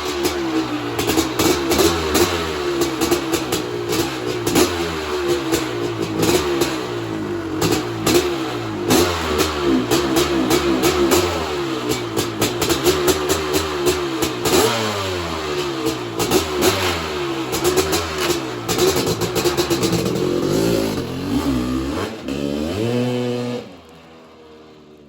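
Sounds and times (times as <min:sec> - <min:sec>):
two-stroke engine revving: 0:00.0 - 0:24.3
crackling exhaust pops: 0:17.5 - 0:20.2.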